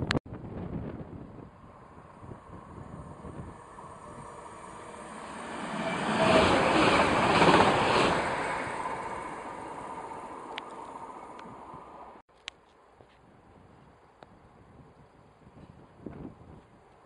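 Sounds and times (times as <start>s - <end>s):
train passing at speed: 0.4s - 12.2s.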